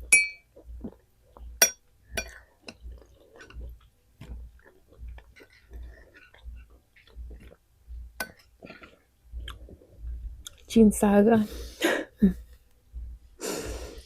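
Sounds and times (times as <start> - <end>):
person chewing food: 0.0 - 10.7.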